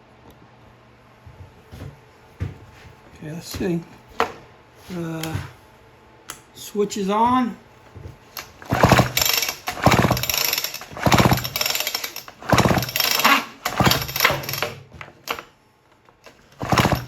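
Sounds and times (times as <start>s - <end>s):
chainsaw engine turning over: 8.4s - 15.5s, 16.3s - 17.0s.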